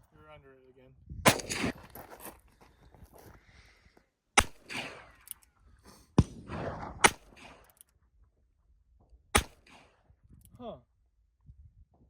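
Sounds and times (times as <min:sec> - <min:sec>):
gunshots with echo: 0:01.3 - 0:01.8.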